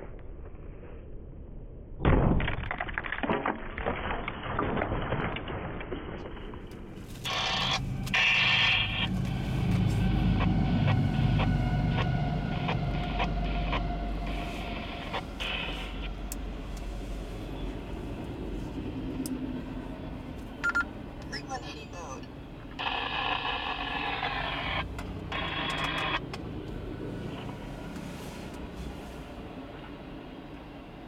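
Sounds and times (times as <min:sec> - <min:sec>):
freight train rumble: 0:06.8 - 0:22.9.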